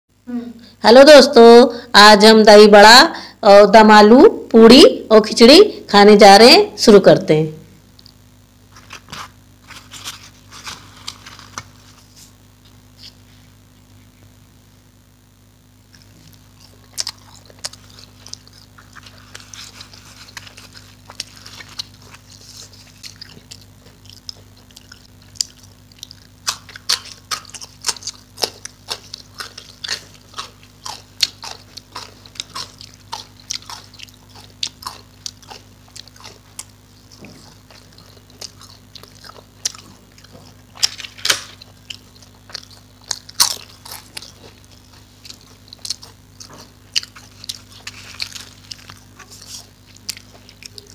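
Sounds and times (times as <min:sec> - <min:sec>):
person chewing and biting: 0:15.7 - 0:50.9.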